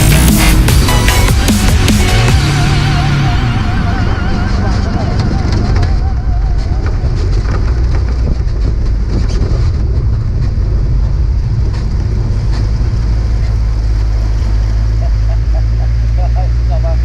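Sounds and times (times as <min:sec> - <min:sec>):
truck engine rumbling: 0:00.0 - 0:17.0
rattles and clatters: 0:04.4 - 0:15.0.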